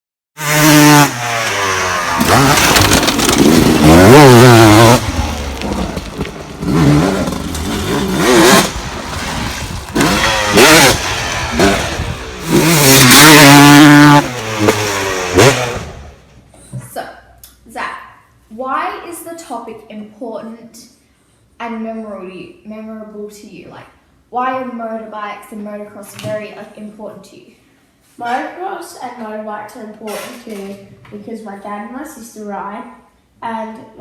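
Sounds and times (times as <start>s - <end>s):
motorcycle engine revving: 0.4s - 16.3s.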